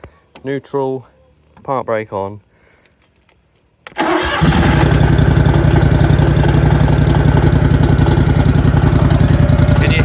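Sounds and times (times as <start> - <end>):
mower engine cranking and running: 3.9 - 10.0
engine rattle: 4.0 - 10.0.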